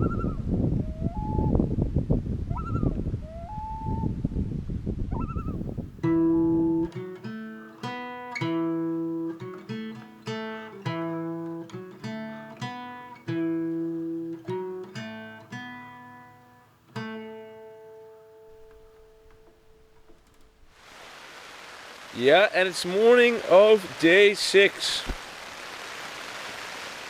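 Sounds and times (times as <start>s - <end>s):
acoustic guitar picked notes: 5.4s - 20.8s.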